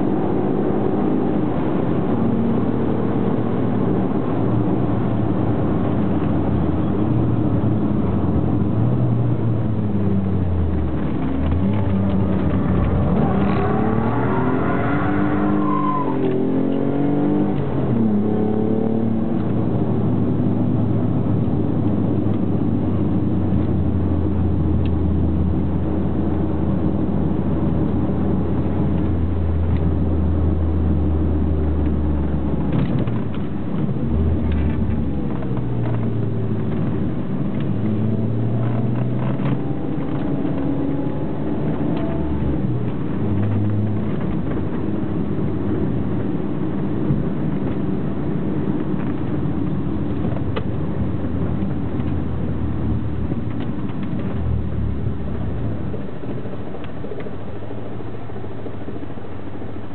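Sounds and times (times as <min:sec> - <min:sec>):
car engine revving: 0:00.0 - 0:24.6, 0:31.3 - 0:47.6.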